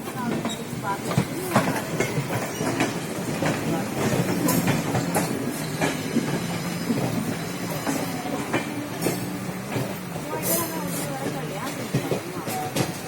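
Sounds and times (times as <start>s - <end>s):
train running hum: 0.0s - 13.0s
wheels clicking over rail joints: 0.0s - 13.0s.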